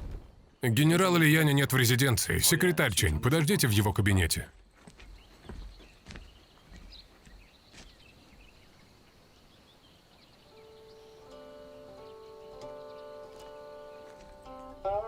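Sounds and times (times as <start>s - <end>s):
soft instrumental music: 10.5s - 15.0s.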